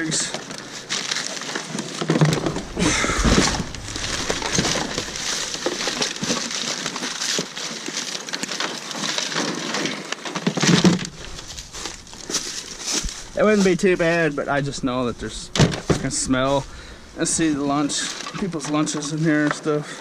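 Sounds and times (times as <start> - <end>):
plastic bags rustling: 0.0 - 19.2
dull thump: 2.3 - 6.2.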